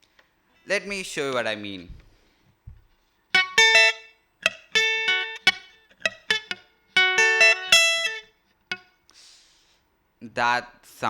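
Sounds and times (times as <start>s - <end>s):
guitar plucked haltingly: 3.4s - 8.9s.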